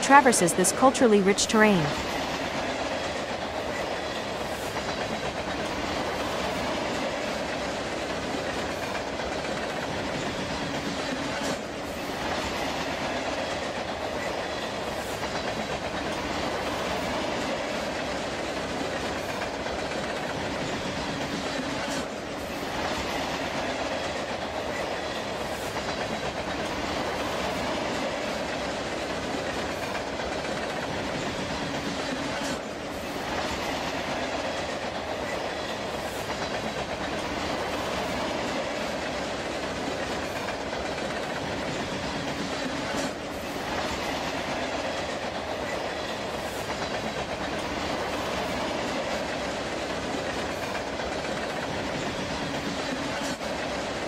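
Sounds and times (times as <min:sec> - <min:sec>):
freight train wheels clacking: 0:00.0 - 0:54.0.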